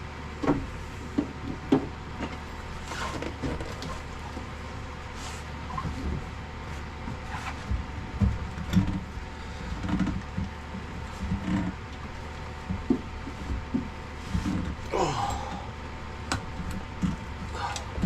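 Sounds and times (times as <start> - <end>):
steady low hum: 0.0 - 18.0
knocks and clunks of hard parts: 0.4 - 2.4, 7.1 - 15.7.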